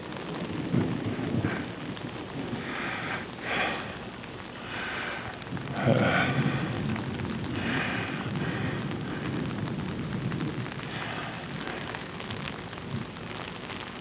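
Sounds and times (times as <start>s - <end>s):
distant thunder rumble: 0.0s - 14.0s
steady rain falling: 0.0s - 14.0s.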